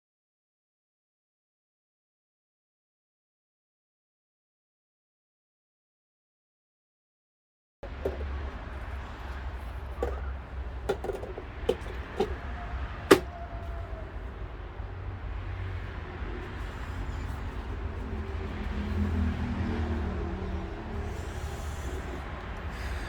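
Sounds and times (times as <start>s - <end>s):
metal parts knocking and clicking: 10.0s - 12.4s, 13.1s - 13.3s.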